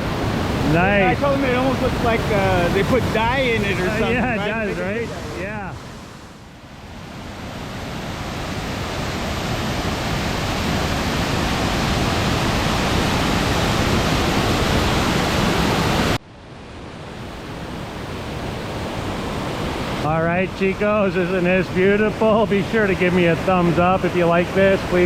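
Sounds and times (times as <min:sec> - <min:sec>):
waterfall roaring: 0:00.0 - 0:16.2.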